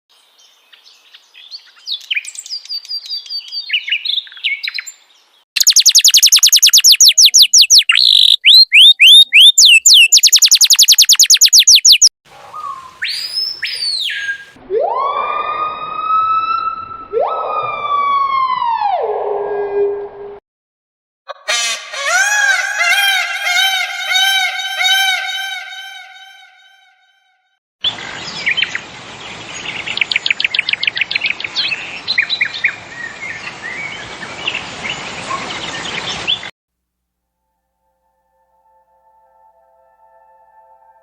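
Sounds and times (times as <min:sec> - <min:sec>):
rapid loud bird chirps: 0:01.3 - 0:05.0, 0:05.6 - 0:14.6, 0:21.4 - 0:26.6
rising and falling bird calls: 0:01.4 - 0:05.0, 0:05.6 - 0:15.1, 0:21.3 - 0:27.0
high bird twittering: 0:05.6 - 0:14.5, 0:21.3 - 0:26.8.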